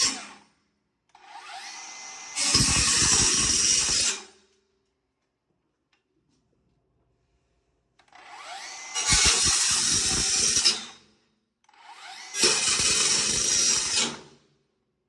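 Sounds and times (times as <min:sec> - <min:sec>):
power tool cutting sheet metal: 0:00.0 - 0:00.5, 0:01.2 - 0:04.5, 0:08.1 - 0:11.1, 0:11.7 - 0:14.4.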